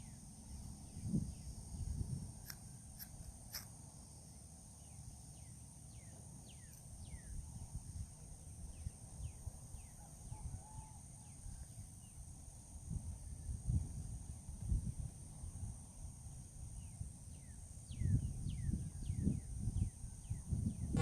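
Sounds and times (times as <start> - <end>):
high-pitched insect drone: 0.0 - 21.0
low wind rumble: 11.6 - 21.0.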